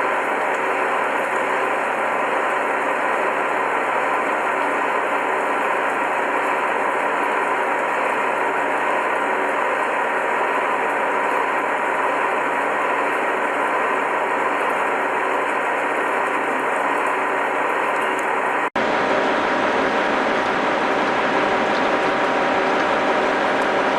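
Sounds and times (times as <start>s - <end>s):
metal-cutting machine running: 0.0s - 23.9s.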